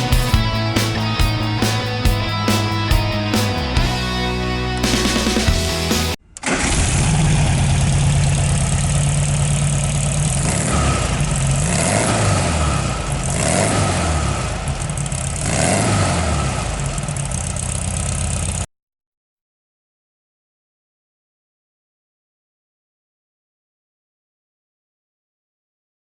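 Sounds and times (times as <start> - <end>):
car engine idling and revving: 4.8 - 18.7.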